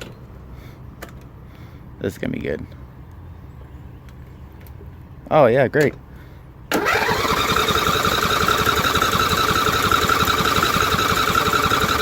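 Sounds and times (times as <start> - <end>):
lawn tractor engine running: 6.7 - 12.0.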